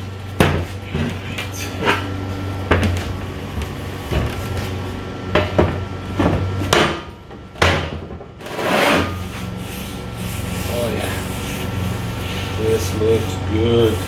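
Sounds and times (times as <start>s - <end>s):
metal plate scraping slide: 8.4s - 12.6s.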